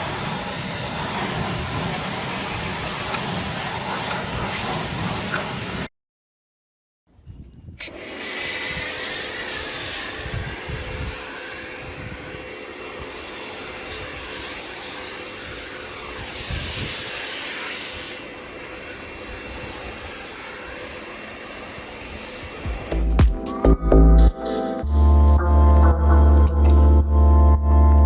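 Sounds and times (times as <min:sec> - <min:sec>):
pressure washer jet hissing: 0:00.0 - 0:05.9, 0:07.8 - 0:23.0.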